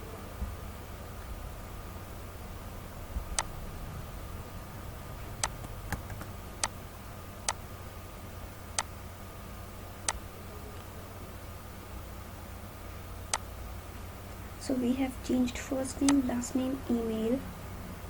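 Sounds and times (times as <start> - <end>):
low steady hum: 0.0 - 18.0
computer mouse clicks: 5.4 - 6.8.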